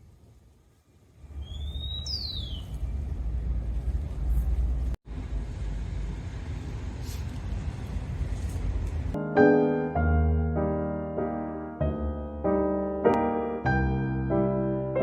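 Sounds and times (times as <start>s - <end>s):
low outdoor rumble: 0.0s - 9.2s
high sliding chirp: 1.4s - 2.8s.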